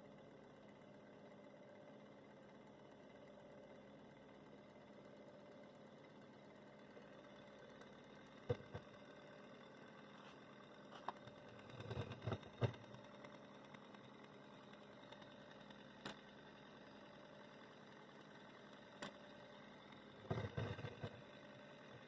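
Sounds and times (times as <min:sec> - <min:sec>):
sharp clicks and knocks: 0:07.8 - 0:08.9, 0:11.0 - 0:13.0, 0:20.2 - 0:21.2.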